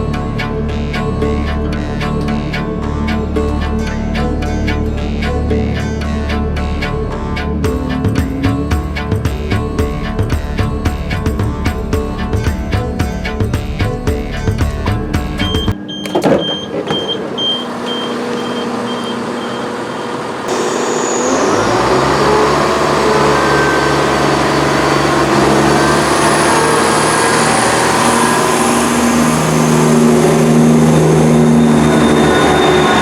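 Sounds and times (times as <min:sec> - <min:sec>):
diesel train engine revving: 0:00.0 - 0:33.0
high beep: 0:15.5 - 0:21.6.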